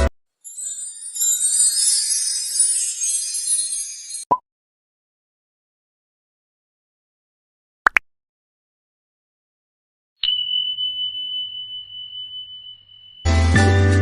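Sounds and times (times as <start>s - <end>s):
bell ding: 10.2s - 14.0s
background music with a beat: 13.2s - 14.0s.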